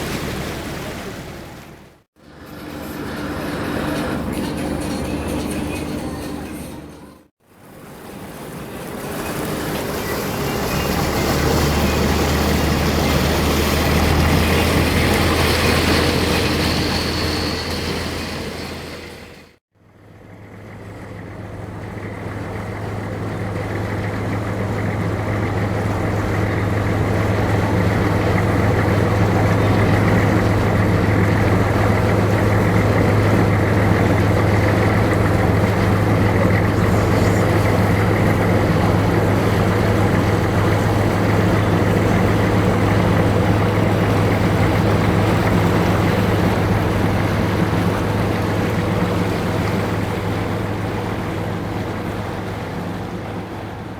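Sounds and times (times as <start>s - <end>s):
boat diesel engine droning: 0.0s - 53.9s
wind and water noise: 0.0s - 53.9s.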